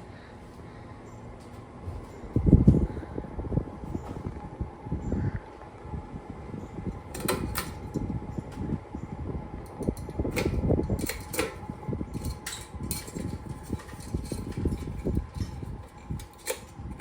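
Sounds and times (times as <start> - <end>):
low uneven rumble: 0.0 - 11.0
ceiling fan humming: 0.0 - 17.0.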